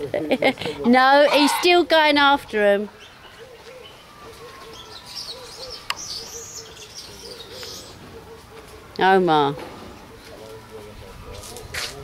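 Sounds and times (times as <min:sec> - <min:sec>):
small birds chirping: 0:01.4 - 0:09.2.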